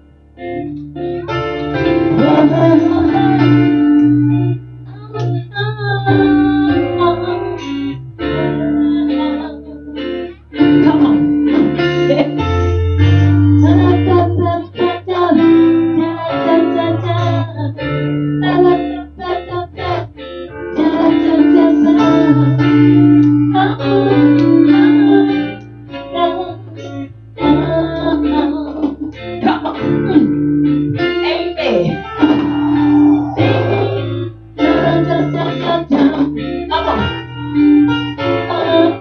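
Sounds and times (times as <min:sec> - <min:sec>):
sustained bass notes: 0:00.0 - 0:09.8, 0:10.5 - 0:39.0
plucked guitar: 0:00.0 - 0:39.0.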